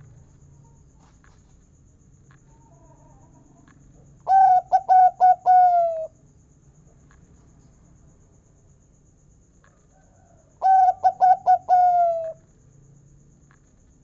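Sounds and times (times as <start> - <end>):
dove cooing: 4.2 - 6.1, 10.6 - 12.4.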